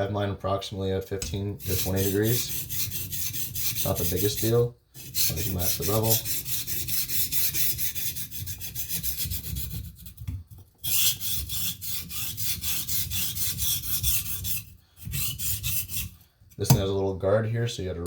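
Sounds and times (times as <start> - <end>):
knife scraping on whetstone: 1.5 - 16.6.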